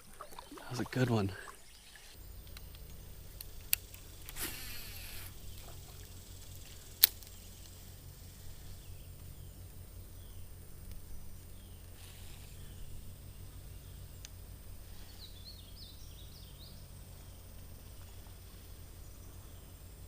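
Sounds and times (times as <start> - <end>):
faint bird chirps: 0.0 - 2.4.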